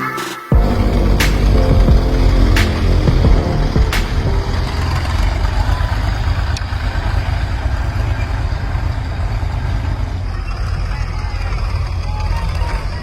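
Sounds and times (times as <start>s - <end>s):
heavy diesel engine rumbling: 0.6s - 10.2s.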